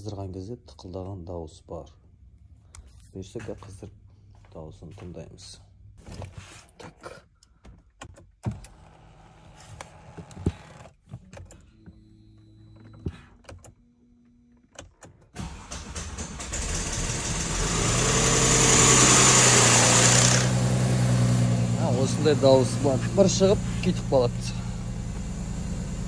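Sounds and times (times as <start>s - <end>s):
car engine starting and idling: 7.0s - 26.0s
engine knock: 15.9s - 20.6s.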